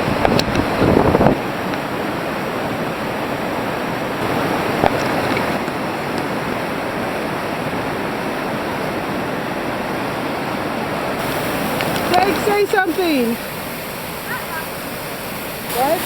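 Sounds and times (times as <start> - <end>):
waterfall rushing water: 0.0 - 16.0.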